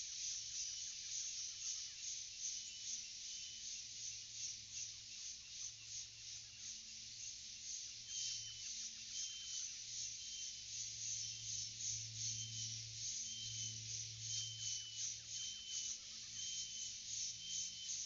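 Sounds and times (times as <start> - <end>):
insect chorus pulsing: 0.0 - 18.0.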